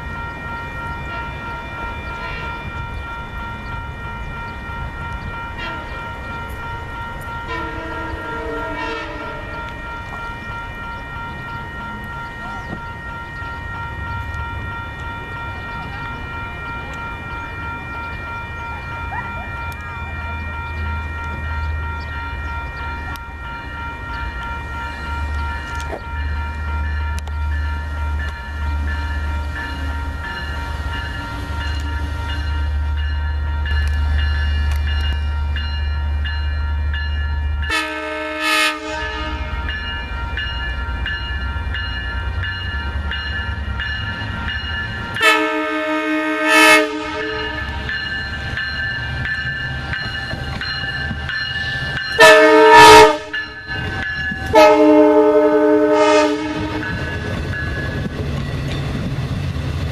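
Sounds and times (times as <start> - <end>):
steady high ringing: 0.0 - 59.9
train horn: 7.4 - 9.8, 37.6 - 39.8, 45.2 - 47.8, 52.2 - 53.6, 54.4 - 57.1.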